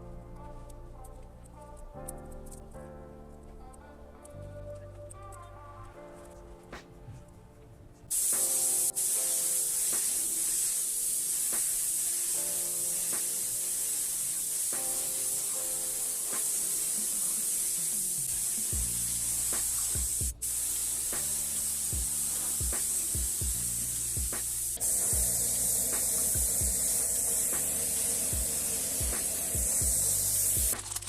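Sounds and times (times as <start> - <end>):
background music: 0.0 - 31.0
spray can hissing: 8.1 - 31.0.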